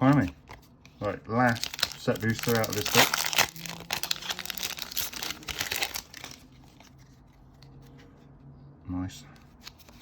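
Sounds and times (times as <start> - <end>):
foil wrapper tearing and crinkling: 1.5 - 6.5.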